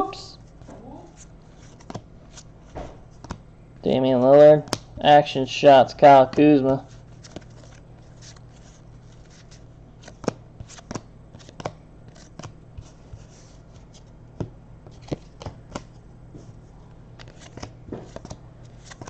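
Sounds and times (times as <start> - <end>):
low steady hum: 0.0 - 19.0
trading cards snapping: 3.2 - 3.4, 4.6 - 4.9, 10.0 - 12.6, 17.2 - 19.0.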